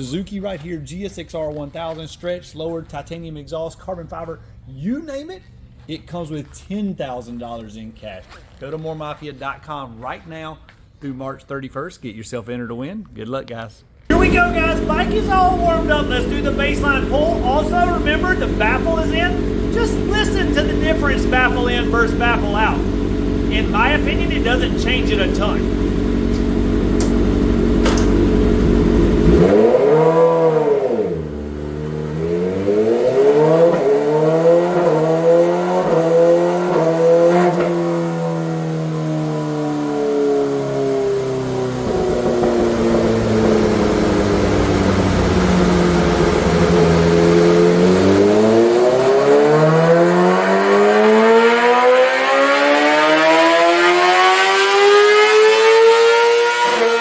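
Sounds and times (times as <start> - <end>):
motorcycle engine revving on dyno: 14.1 - 57.0.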